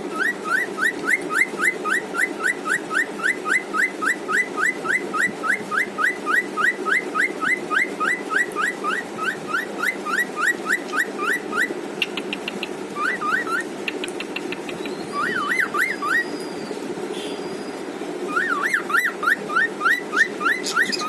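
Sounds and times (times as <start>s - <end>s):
bird rapid clicks: 12.0s - 15.0s
bird whistling rising notes: 13.0s - 13.7s, 14.8s - 16.8s, 17.5s - 21.0s.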